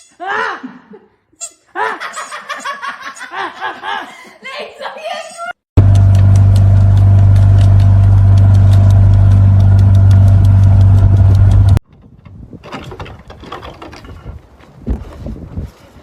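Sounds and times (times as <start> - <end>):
machine motor hum: 5.8 - 11.8
rustles and knocks: 5.9 - 15.9.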